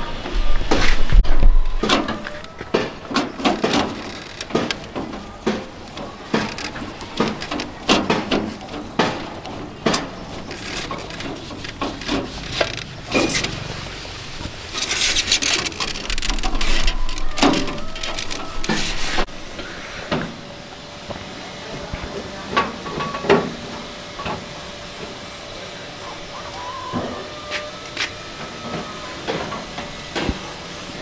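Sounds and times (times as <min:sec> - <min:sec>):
knocks clicks and rubbing of parts: 0:00.7 - 0:13.7, 0:14.4 - 0:19.3.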